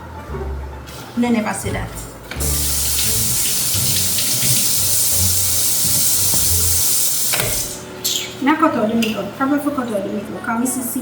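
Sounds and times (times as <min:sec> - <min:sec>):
tap running into a sink: 0:02.3 - 0:07.8.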